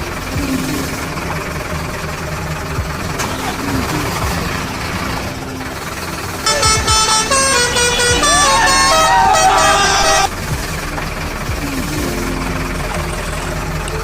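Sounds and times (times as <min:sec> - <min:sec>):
engine hum: 0:00.0 - 0:14.0
musical horn playing tune: 0:06.4 - 0:10.3.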